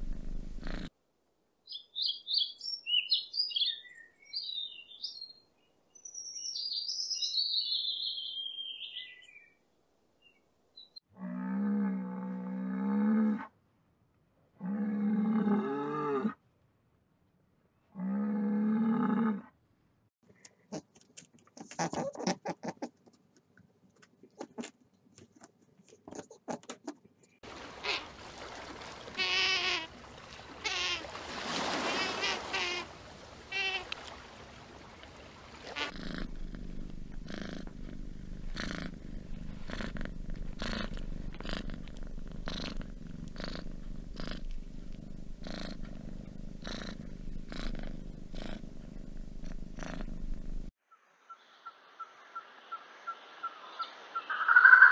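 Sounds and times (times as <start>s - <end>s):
kitten purring: 0.0s - 0.9s, 35.8s - 50.7s
high warbling animal calls: 50.9s - 54.9s.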